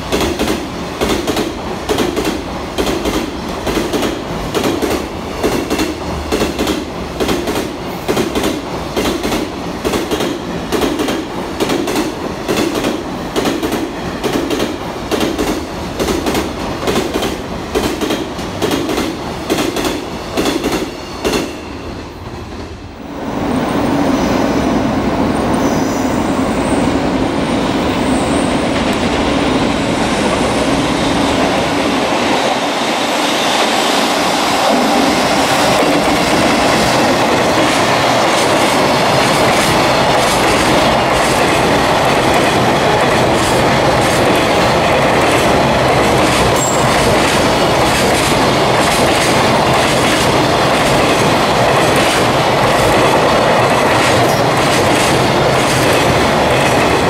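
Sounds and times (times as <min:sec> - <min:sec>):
freight train rumble: 0:00.0 - 0:57.0
wheels clicking over rail joints: 0:35.8 - 0:57.0.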